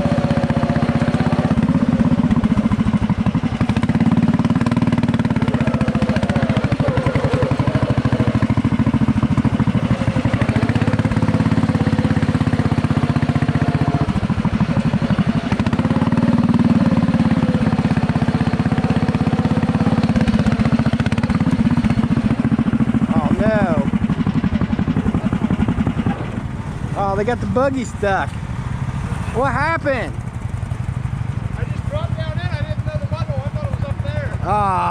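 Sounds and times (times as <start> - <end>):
tractor engine running hard: 0.0 - 34.9.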